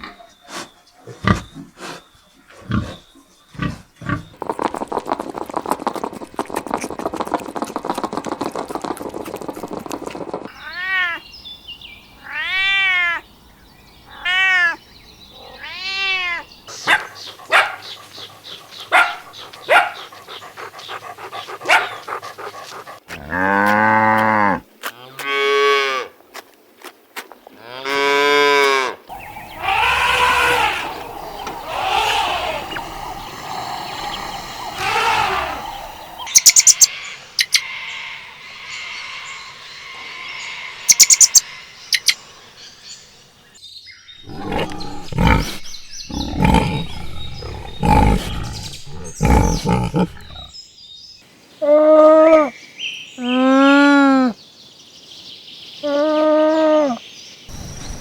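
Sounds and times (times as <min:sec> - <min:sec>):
high animal cries: 0:10.5 - 0:11.3, 0:12.2 - 0:13.2, 0:14.1 - 0:14.8, 0:15.4 - 0:22.6, 0:29.1 - 0:36.9, 0:55.8 - 0:57.0
cattle lowing: 0:16.7 - 0:24.6, 0:29.1 - 0:36.8, 0:44.2 - 0:50.5.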